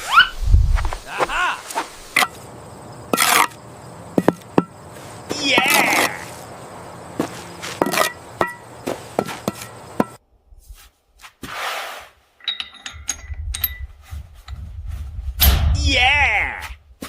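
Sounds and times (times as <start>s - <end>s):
sharp knocks: 4.2s - 4.8s, 7.2s - 10.2s.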